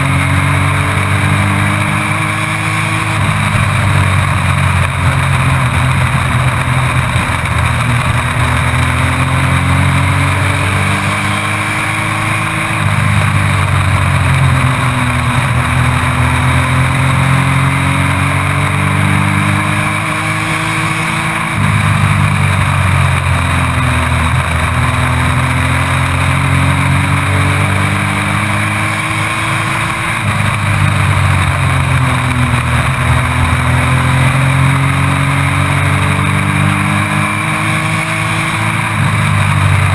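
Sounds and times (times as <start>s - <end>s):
race truck engine: 0.0s - 39.9s
wind and road noise: 0.0s - 39.9s.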